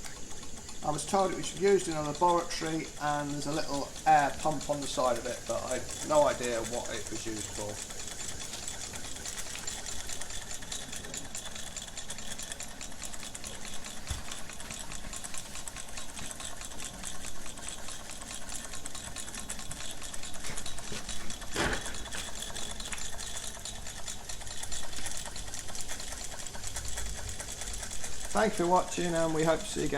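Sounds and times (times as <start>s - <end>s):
hot air engine clattering: 0.0s - 29.9s.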